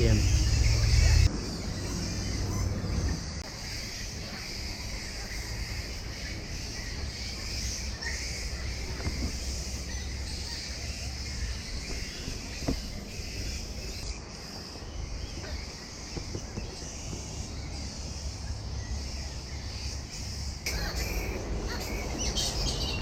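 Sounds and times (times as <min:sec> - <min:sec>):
low rumble: 0:00.0 - 0:03.5
faint bird calls: 0:00.0 - 0:23.0
insects hissing: 0:00.0 - 0:23.0.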